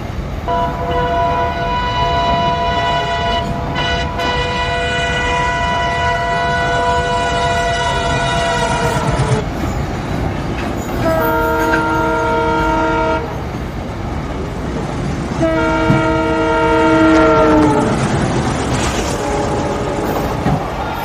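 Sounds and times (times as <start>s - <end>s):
freight train rumble and clatter: 0.0s - 21.0s
train horn blasts: 0.5s - 9.6s, 11.0s - 13.4s, 15.4s - 18.1s, 19.0s - 20.7s.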